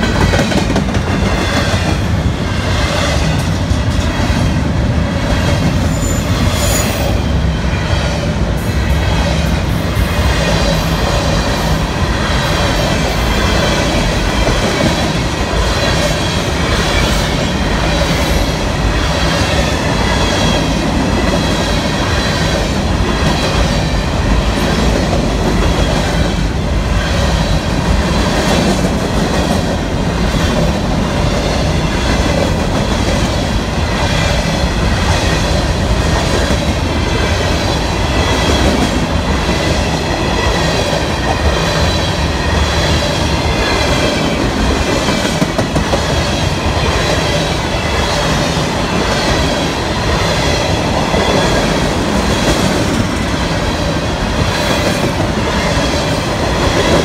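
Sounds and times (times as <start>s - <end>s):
freight train wheels clattering: 0.0s - 7.4s, 8.6s - 57.0s
high wavering wheel squeal: 5.8s - 7.2s.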